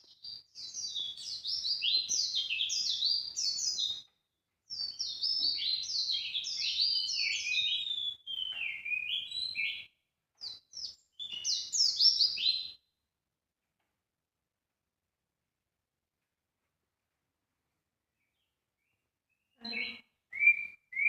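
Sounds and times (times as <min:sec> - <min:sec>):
songbird chirps: 0:00.0 - 0:13.0, 0:18.0 - 0:21.0.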